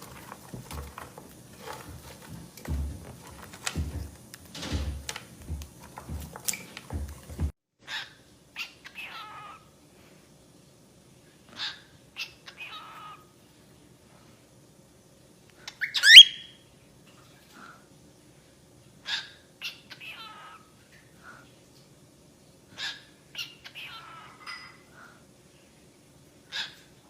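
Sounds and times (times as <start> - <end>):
bird chirps and squawks: 7.8 - 9.7, 11.6 - 13.3, 15.7 - 16.5, 22.8 - 24.6, 26.5 - 26.9
rising whistled bird call: 15.8 - 16.6.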